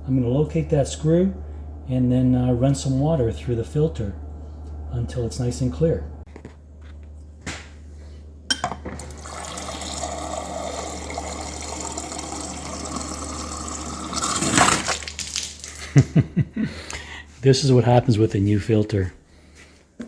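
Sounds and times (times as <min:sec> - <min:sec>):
water pouring into glass: 0:09.0 - 0:16.0.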